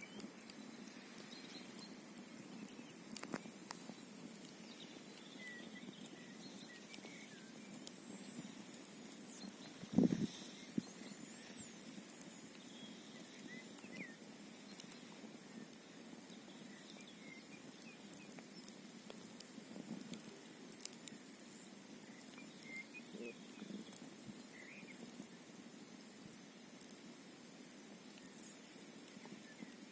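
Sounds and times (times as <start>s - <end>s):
faint high chirps: 0.0s - 18.9s, 20.8s - 25.1s
campfire crackling and popping: 0.0s - 29.9s.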